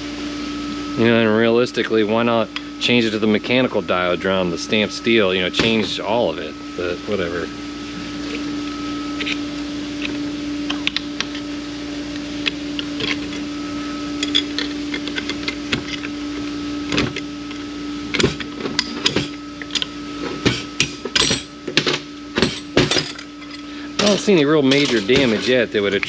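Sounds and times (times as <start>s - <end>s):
mechanical hum: 0.0s - 26.0s
metal parts clinking: 14.2s - 16.1s, 20.5s - 26.0s.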